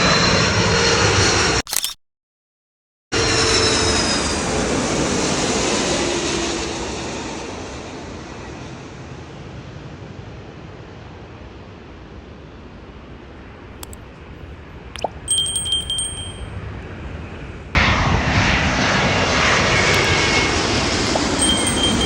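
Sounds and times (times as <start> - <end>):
jet airliner engine noise: 17.8 - 22.0.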